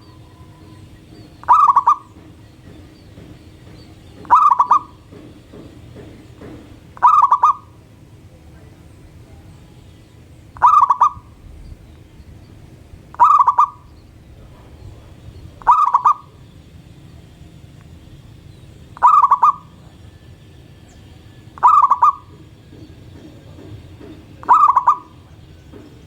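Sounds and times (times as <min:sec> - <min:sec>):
dove cooing: 0:00.0 - 0:02.8, 0:04.1 - 0:05.3, 0:06.0 - 0:07.8, 0:10.6 - 0:11.4, 0:13.1 - 0:16.5, 0:18.8 - 0:20.1, 0:21.4 - 0:26.0.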